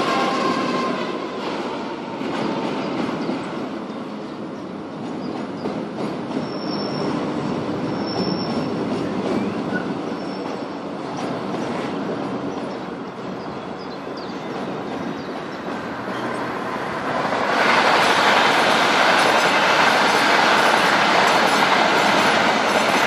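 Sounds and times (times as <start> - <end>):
freight train wheels rumbling: 0.0 - 23.0.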